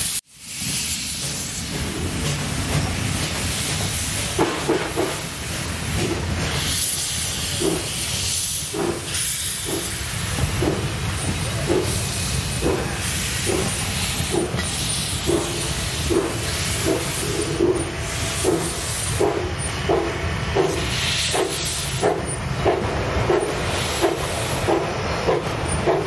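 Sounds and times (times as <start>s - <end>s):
steam hissing: 0.0s - 26.0s
wheels clicking over rail joints: 8.6s - 26.0s.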